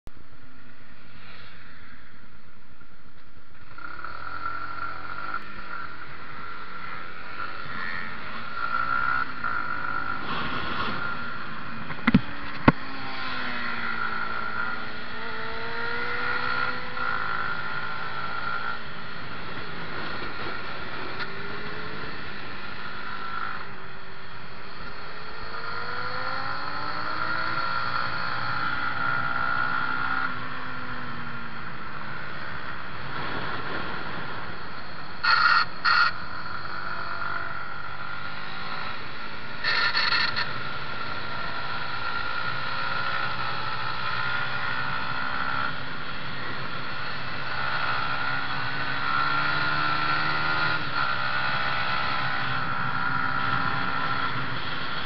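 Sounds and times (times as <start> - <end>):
motorcycle engine revving: 3.6 - 55.0
sharp knocks: 11.9 - 12.8.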